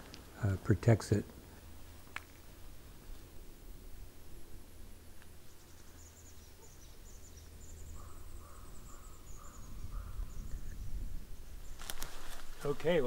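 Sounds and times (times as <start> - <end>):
low wind rumble: 0.0 - 13.0
birds twittering: 5.2 - 13.0
lower bird calls: 5.3 - 12.5.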